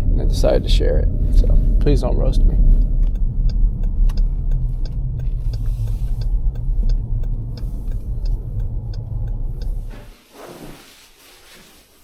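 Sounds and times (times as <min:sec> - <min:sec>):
car engine and road rumble: 0:00.0 - 0:12.0
regular ticking: 0:01.8 - 0:09.9.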